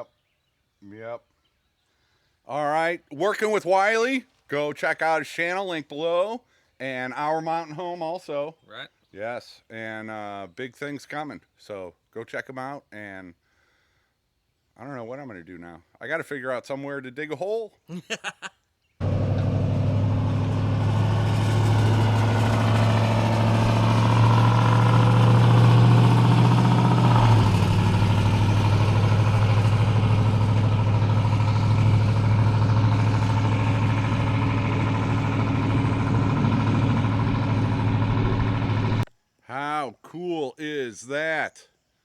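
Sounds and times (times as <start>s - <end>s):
diesel engine running: 19.0s - 39.1s.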